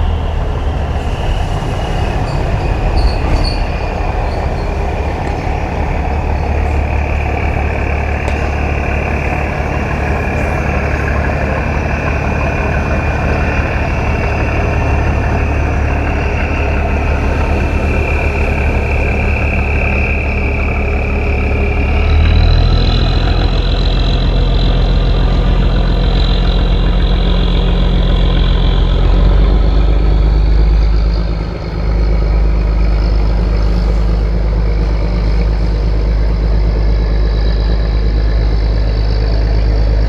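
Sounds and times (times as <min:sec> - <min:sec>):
boat engine running: 0:00.0 - 0:40.0.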